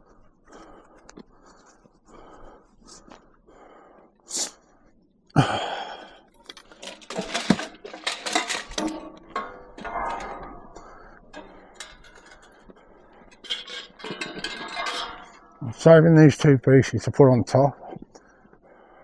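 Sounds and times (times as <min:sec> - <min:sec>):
scrap metal clanking: 0:06.6 - 0:15.7.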